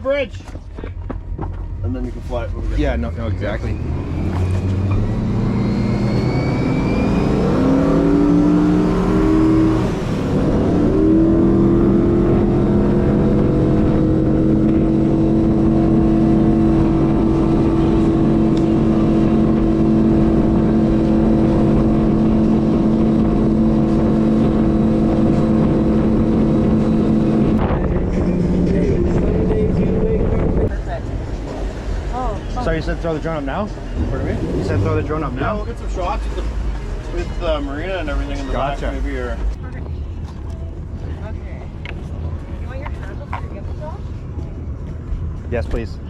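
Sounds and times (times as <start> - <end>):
motorboat engine: 11.3 - 39.0.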